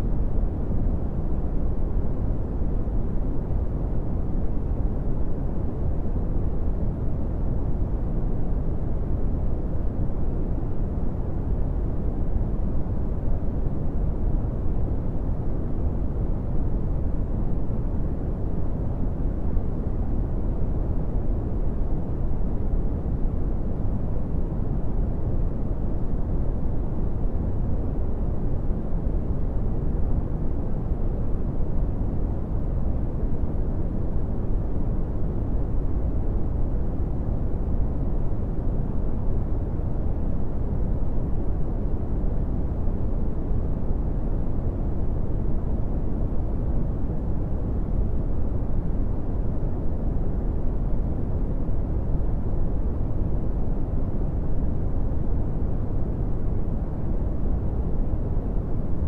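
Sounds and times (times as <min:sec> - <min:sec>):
brown noise rumbling hiss: 0:00.0 - 0:59.0.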